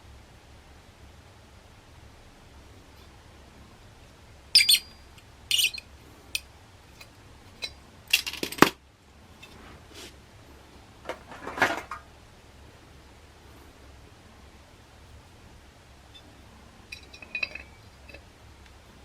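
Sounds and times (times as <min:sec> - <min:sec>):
small metal parts clinking: 0:04.6 - 0:08.8, 0:16.9 - 0:18.2.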